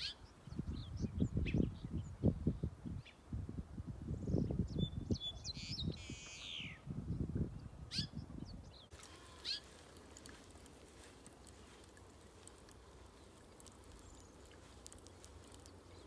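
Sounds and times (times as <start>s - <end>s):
faint outdoor ambience: 6.3s - 16.0s.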